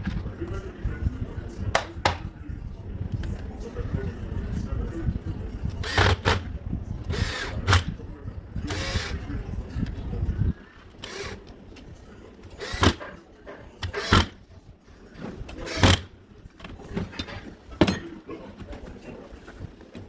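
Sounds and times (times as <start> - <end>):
power drill: 5.8 - 6.4, 7.1 - 7.8, 8.7 - 9.1, 11.0 - 11.4, 12.6 - 13.0, 13.9 - 14.3.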